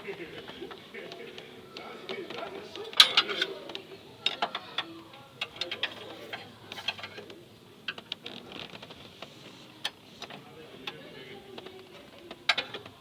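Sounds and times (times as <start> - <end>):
hand tools clicking on metal: 2.9 - 7.3.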